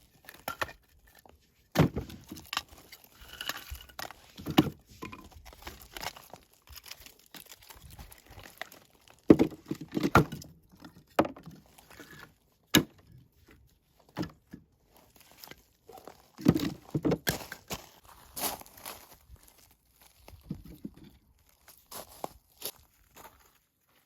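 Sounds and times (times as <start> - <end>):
wooden knocks and thuds: 9.3 - 10.5, 16.4 - 17.4.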